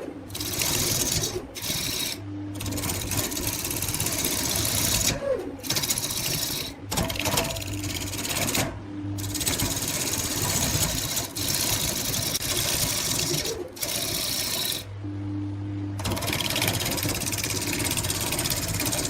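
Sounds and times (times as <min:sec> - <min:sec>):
wood lathe humming: 0:00.0 - 0:06.8, 0:09.2 - 0:14.9
lathe tool cutting wood: 0:00.3 - 0:02.2, 0:03.0 - 0:06.8, 0:09.2 - 0:14.8.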